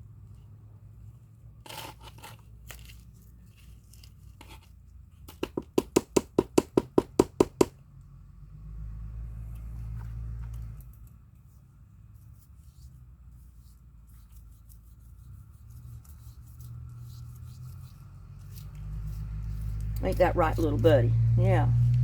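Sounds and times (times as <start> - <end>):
rustling plants and potting soil: 0.1 - 5.3, 9.4 - 22.0
sharp knocks: 5.5 - 7.8.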